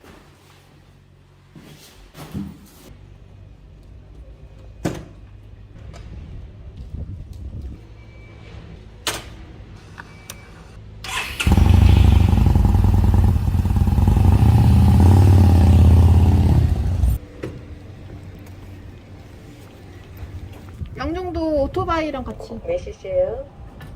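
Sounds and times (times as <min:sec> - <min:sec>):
motorcycle engine starting and running: 0:11.0 - 0:17.2.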